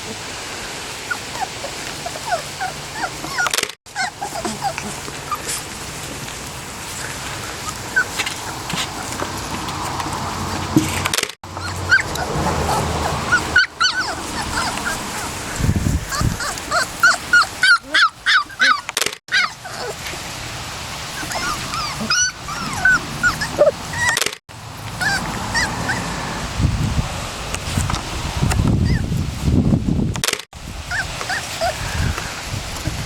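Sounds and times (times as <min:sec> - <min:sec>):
puppies whimpering and yipping: 0:01.1 - 0:06.0, 0:06.9 - 0:09.5, 0:11.5 - 0:20.3, 0:21.0 - 0:26.5, 0:28.8 - 0:29.1, 0:30.8 - 0:32.4.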